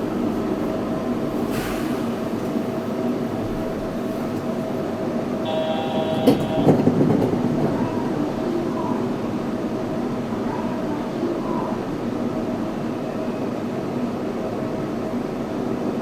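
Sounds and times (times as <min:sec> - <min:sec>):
train running noise: 0:00.0 - 0:16.0
brief high-pitched tone: 0:05.5 - 0:06.8.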